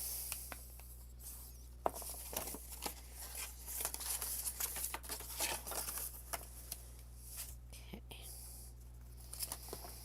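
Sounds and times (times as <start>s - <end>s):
steady low hum: 0.0s - 10.0s
cardstock rustling and scraping: 1.3s - 7.6s.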